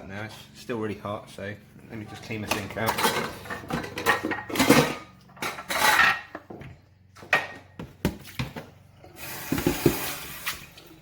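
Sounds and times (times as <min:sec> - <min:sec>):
clatter in a kitchen sink: 0:02.5 - 0:06.4, 0:09.4 - 0:10.6
tap water running: 0:09.0 - 0:11.0.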